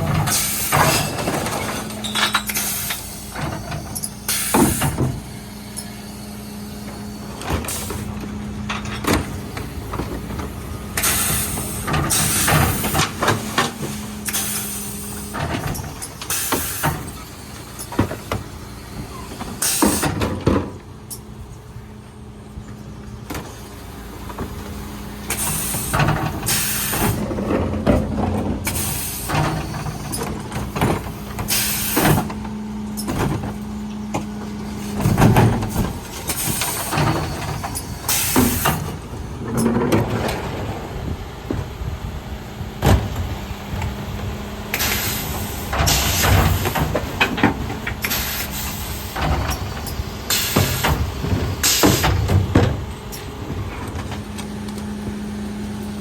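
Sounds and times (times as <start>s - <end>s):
truck hum: 0.0s - 56.0s
bins banging: 23.2s - 56.0s.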